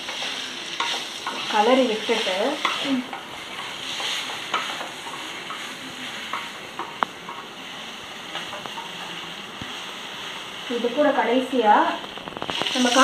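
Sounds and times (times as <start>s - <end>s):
chicken sizzling in a pot: 0.0s - 13.0s
wooden spatula scraping a pot: 12.0s - 13.0s.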